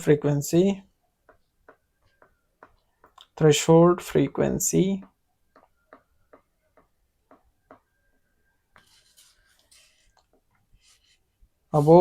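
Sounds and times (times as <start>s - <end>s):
scratchy writing: 8.7s - 12.0s.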